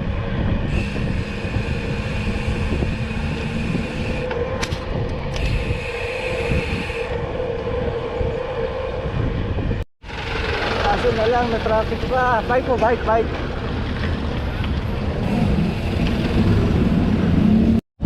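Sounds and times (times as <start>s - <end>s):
high whine: 0.0s - 17.8s
road traffic noise: 0.0s - 17.8s
wind rumble on microphone: 0.0s - 17.8s
steady hum: 0.3s - 9.8s.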